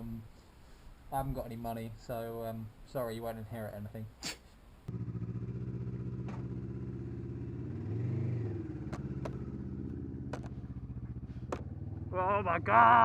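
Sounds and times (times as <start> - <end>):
motorcycle engine running: 4.9 - 13.0.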